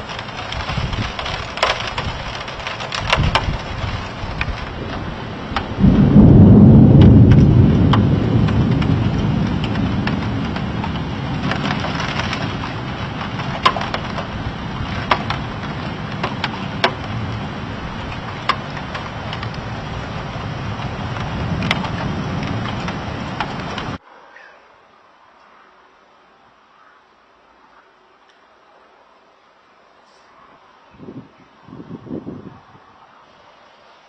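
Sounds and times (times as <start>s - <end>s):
thunder rumbling: 0.0s - 24.0s.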